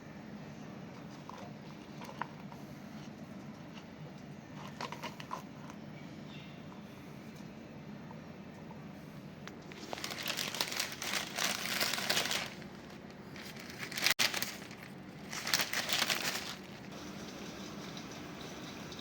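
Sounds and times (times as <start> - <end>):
crinkling rustling handling noise: 9.4 - 17.0.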